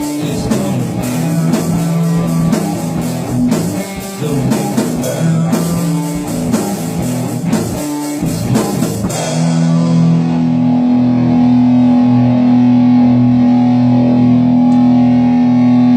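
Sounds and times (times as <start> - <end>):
drum and cymbal hits: 0.0 - 10.4
electric guitar chord ringing: 0.0 - 15.9.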